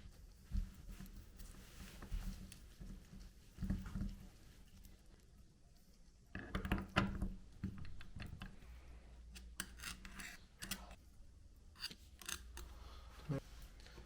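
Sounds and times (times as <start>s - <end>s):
metal tools scraping and clicking: 9.4s - 11.0s, 11.8s - 12.7s.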